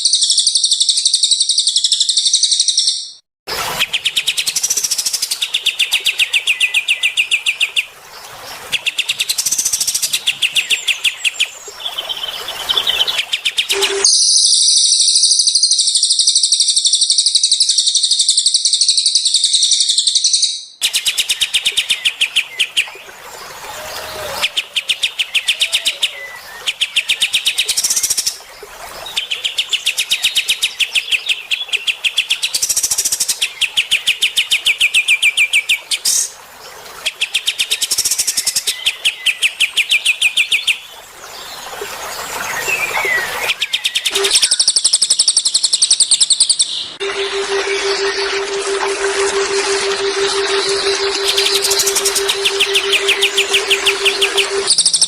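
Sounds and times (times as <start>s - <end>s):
bird twittering song: 0.0s - 3.2s, 8.8s - 23.1s, 37.1s - 55.0s
birds trilling: 46.8s - 55.0s.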